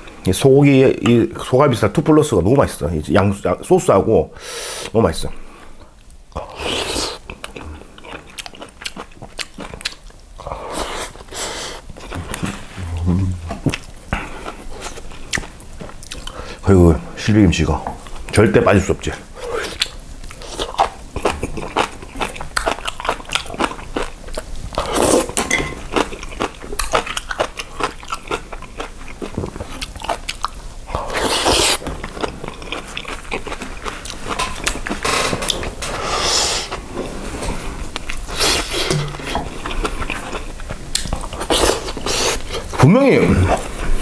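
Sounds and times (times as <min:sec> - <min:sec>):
chewing and crunching food: 0:05.8 - 0:16.6, 0:19.2 - 0:42.8.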